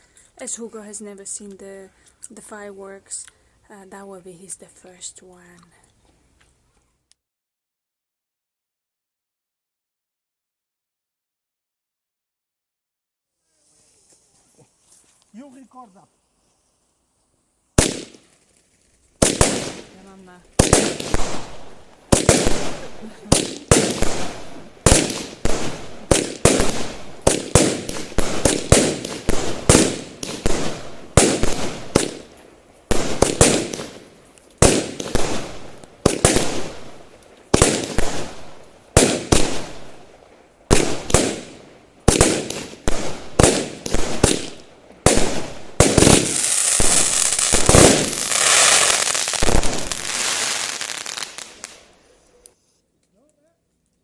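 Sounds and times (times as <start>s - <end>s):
firework bangs: 17.8s - 18.6s, 19.2s - 52.0s
dense firework crackling: 17.8s - 52.5s.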